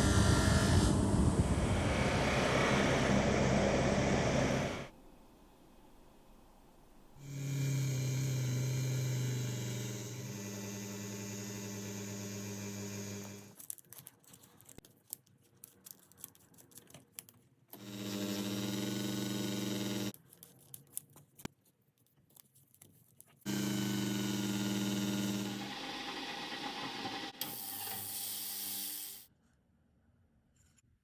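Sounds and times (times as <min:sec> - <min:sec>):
electric bench machine humming: 0:07.2 - 0:13.5, 0:17.8 - 0:20.1, 0:23.5 - 0:29.3.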